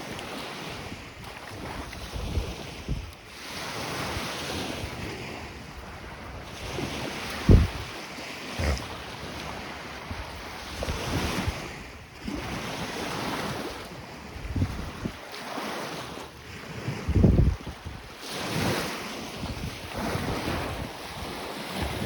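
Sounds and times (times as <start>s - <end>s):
wind on microphone: 0.0s - 15.3s, 16.4s - 22.0s
waves washing on shore: 0.0s - 22.0s
low wind thumps: 7.4s - 7.9s.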